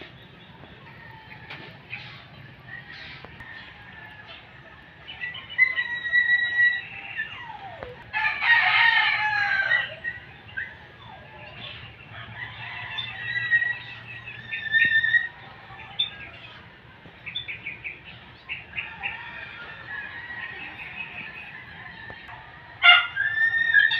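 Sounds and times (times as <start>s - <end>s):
bird calls: 0.0s - 8.1s, 9.4s - 23.9s
chickens clucking: 0.0s - 23.9s
rooster crowing: 8.1s - 10.2s, 12.1s - 15.4s, 18.8s - 23.9s.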